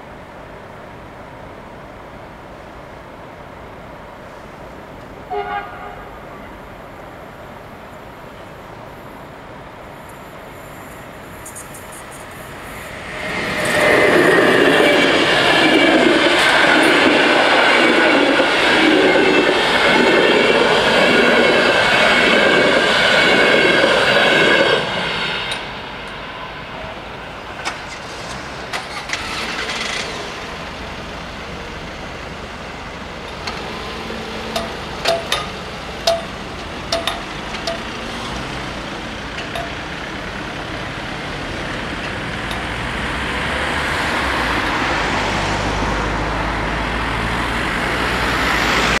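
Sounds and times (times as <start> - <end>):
passenger train rolling: 0.0 - 49.0
road traffic driving past: 3.5 - 49.0
crossing barrier clicks and knocks: 27.6 - 30.2, 33.2 - 33.8, 34.4 - 40.2, 41.7 - 42.8.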